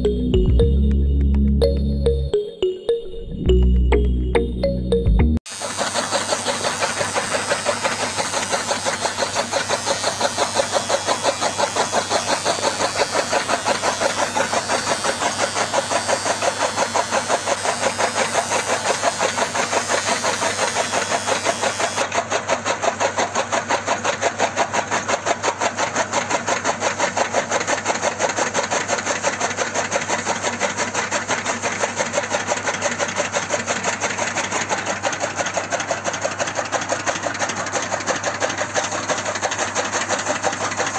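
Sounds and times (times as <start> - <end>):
chaff cutter clattering: 5.6 - 40.9.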